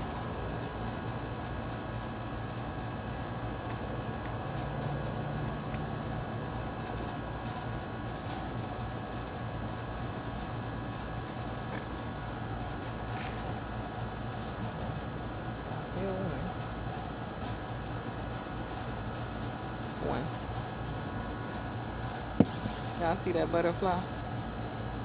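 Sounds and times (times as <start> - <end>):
constant hum: 0.0 - 25.0.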